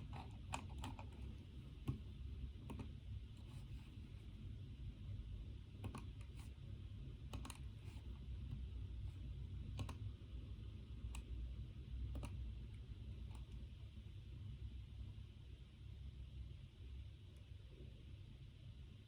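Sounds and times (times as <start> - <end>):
steady low hum: 0.0 - 19.0
computer keyboard keystrokes: 0.1 - 3.0, 5.8 - 6.4, 7.2 - 7.7, 9.6 - 10.1, 12.0 - 12.5.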